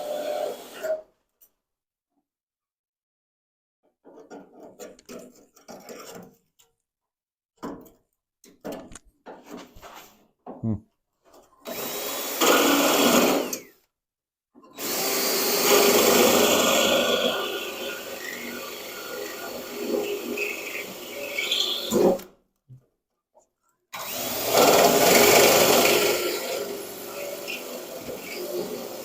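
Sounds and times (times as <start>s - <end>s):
power drill on sheet metal: 0.0s - 1.0s, 11.6s - 13.8s, 14.7s - 22.3s, 23.9s - 29.0s
metal and tools scraping and knocking: 4.0s - 6.7s.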